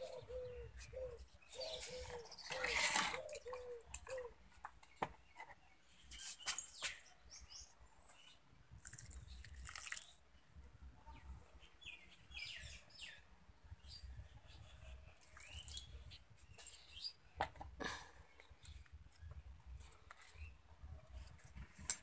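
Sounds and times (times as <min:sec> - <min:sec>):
small birds chirping: 0:00.0 - 0:17.4.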